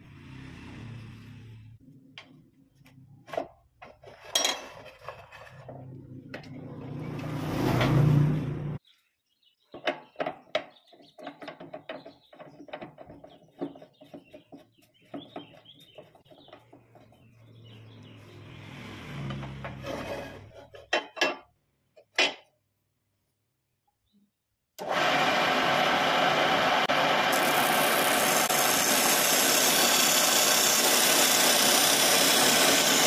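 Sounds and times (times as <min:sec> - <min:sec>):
wooden pieces and tools knocking: 0:03.2 - 0:07.3, 0:09.6 - 0:17.3, 0:19.2 - 0:22.5
lathe cutting hiss: 0:24.8 - 0:33.0
wood lathe humming: 0:24.8 - 0:33.0.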